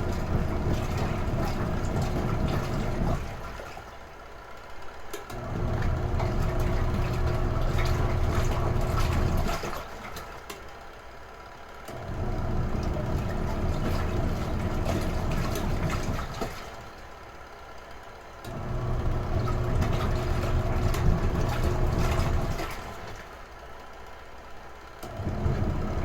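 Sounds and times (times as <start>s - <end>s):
water sloshing: 0.0s - 4.0s, 5.7s - 10.4s, 12.8s - 17.0s, 19.0s - 23.3s
washing machine motor hum: 0.0s - 23.9s, 24.8s - 26.0s.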